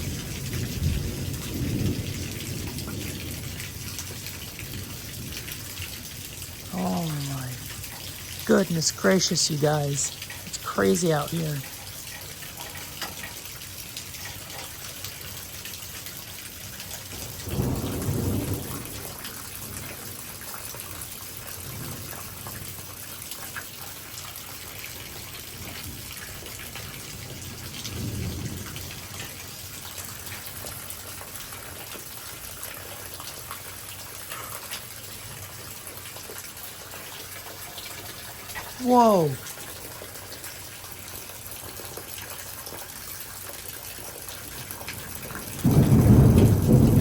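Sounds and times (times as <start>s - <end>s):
thunder rumbling: 0.0s - 8.2s, 17.3s - 19.9s, 25.6s - 29.4s, 45.0s - 47.0s
heavy rain pouring: 0.0s - 47.0s.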